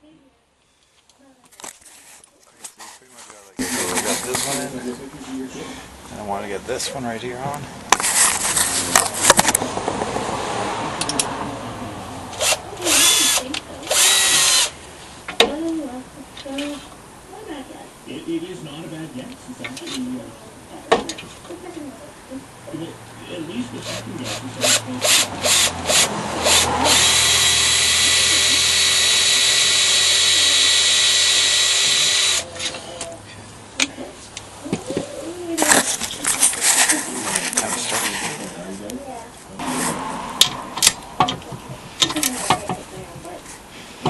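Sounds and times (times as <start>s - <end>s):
power drill spinning: 12.4s - 14.8s, 23.8s - 33.0s.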